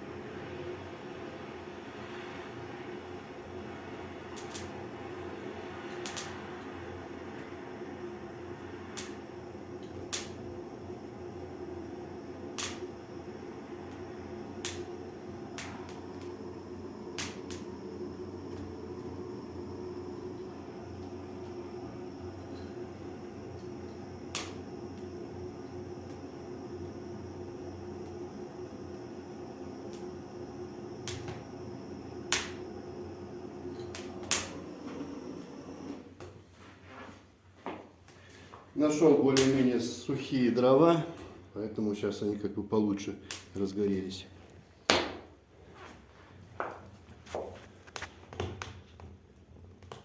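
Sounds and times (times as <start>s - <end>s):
steady background hum: 0.0s - 50.0s
firewood crackling and popping: 4.3s - 4.8s, 5.9s - 6.7s, 8.9s - 10.5s, 11.5s - 36.3s
firewood crackling pops: 9.0s - 9.2s, 9.9s - 10.4s, 12.6s - 12.9s, 14.6s - 14.9s, 17.1s - 17.7s, 23.9s - 25.1s, 31.0s - 31.4s, 32.3s - 32.7s, 33.7s - 34.6s.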